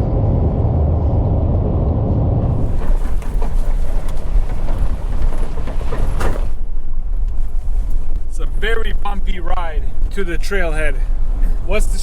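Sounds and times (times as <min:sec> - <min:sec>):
vehicle rumbling: 0:00.0 - 0:12.0
vehicle knocks and clicks: 0:02.4 - 0:07.5.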